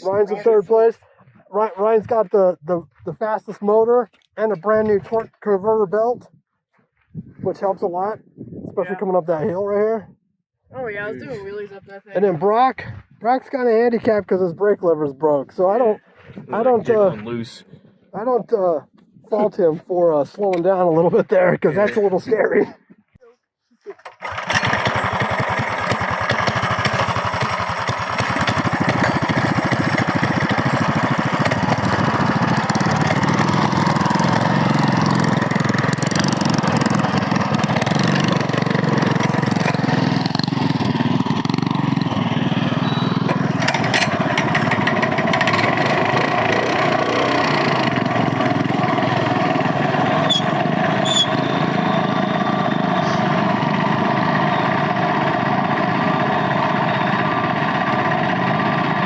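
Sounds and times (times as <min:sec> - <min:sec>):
minibike engine under throttle: 0:23.9 - 0:59.0.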